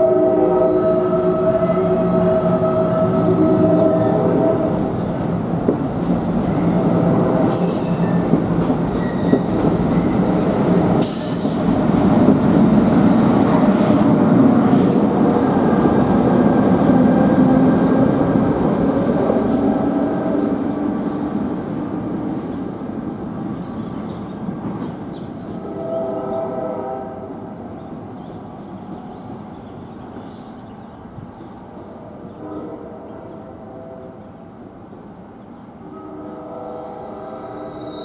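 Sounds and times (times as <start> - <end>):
train wheels rumbling on rail: 0.0 - 33.2.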